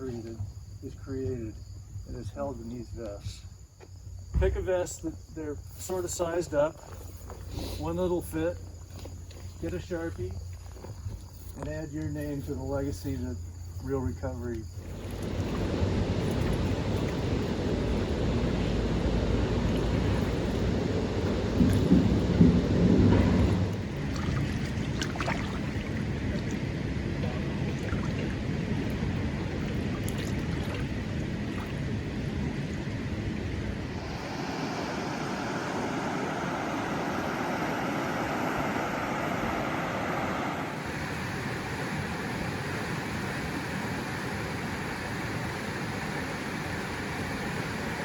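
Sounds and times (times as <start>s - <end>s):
flowing stream water: 14.8s - 48.0s.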